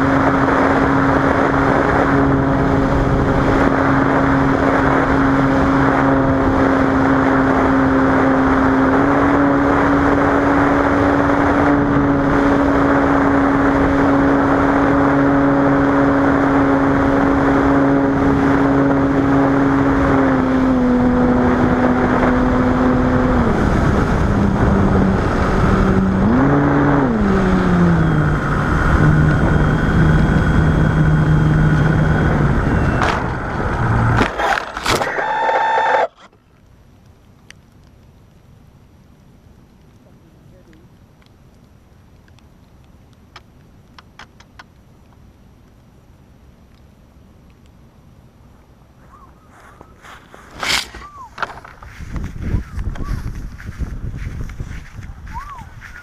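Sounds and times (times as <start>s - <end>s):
airplane engine and propeller droning: 0.0s - 36.4s, 48.6s - 56.0s.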